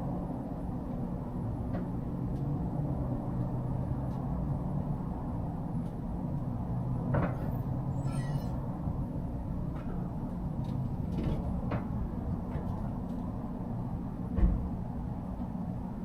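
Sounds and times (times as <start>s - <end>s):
truck engine and road drone: 0.0s - 16.0s
wavering squeak: 7.9s - 8.6s.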